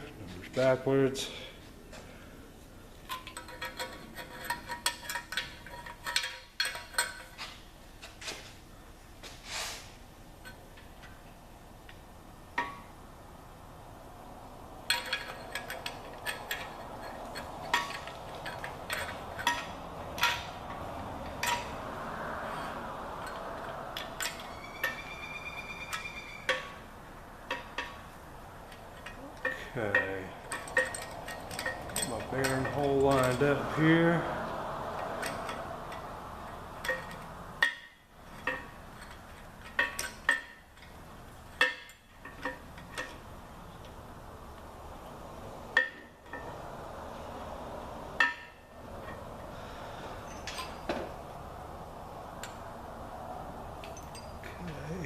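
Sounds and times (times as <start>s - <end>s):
light metal clinks and scrapes: 3.0s - 12.9s, 14.8s - 44.0s, 45.8s - 47.3s, 48.2s - 55.0s
brief high squeak: 24.4s - 26.8s.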